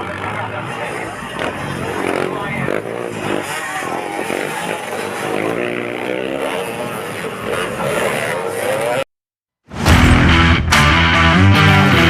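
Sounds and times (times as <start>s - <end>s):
dirt bike engine revving: 0.0s - 9.1s.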